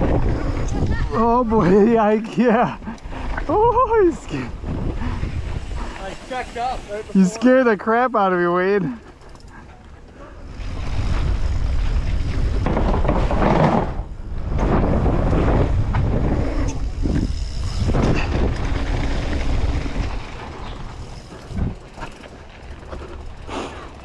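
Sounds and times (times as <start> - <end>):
wind buffeting microphone: 0.0 - 7.5, 9.1 - 24.0
bike tyres rolling on dirt: 0.0 - 24.0.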